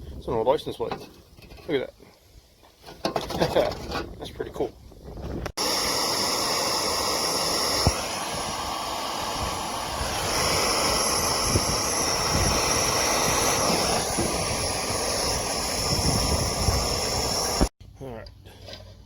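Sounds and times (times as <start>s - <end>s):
blowtorch flame hissing: 5.6s - 17.7s.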